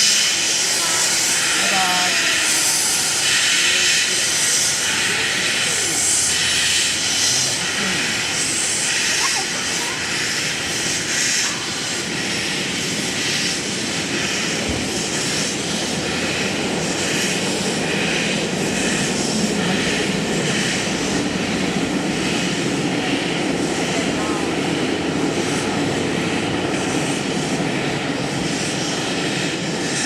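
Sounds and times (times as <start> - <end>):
steam locomotive hissing steam: 0.0 - 30.0.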